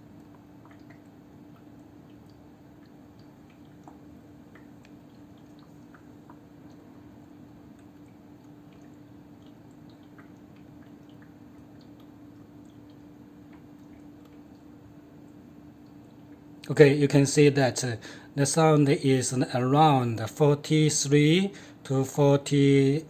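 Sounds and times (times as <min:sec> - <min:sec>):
water dripping and gurgling: 0:00.0 - 0:16.8, 0:17.9 - 0:23.0
humidifier humming: 0:00.0 - 0:23.0.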